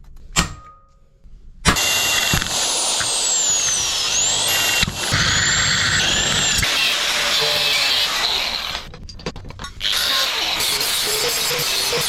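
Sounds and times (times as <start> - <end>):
angle grinder on metal: 1.7 - 8.9, 9.8 - 12.0.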